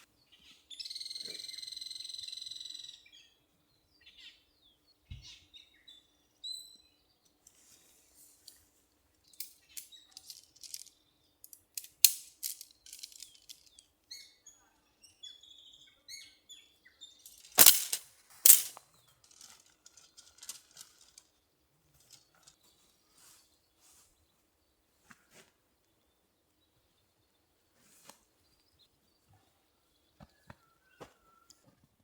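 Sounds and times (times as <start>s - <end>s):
sharp clicks and knocks: 17.3s - 18.8s.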